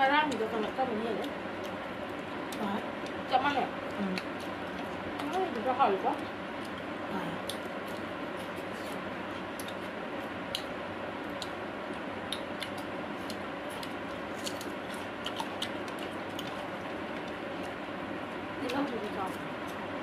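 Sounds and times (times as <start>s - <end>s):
people chewing and lip smacking: 3.8s - 5.6s, 6.6s - 17.8s.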